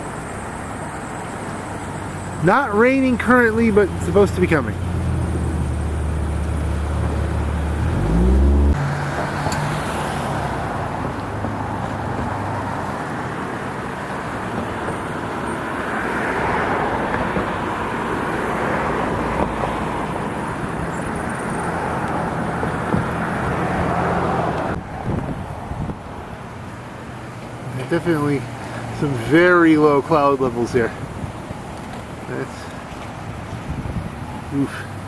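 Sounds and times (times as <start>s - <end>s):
vehicle engine running: 4.7s - 8.9s.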